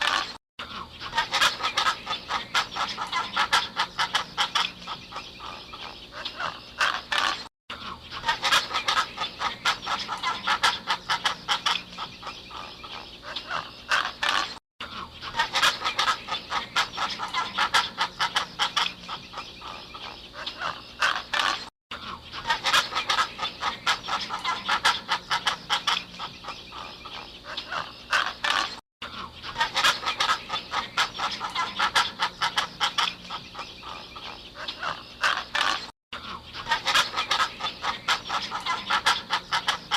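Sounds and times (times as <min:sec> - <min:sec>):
flock of birds calling: 0:00.0 - 0:39.9.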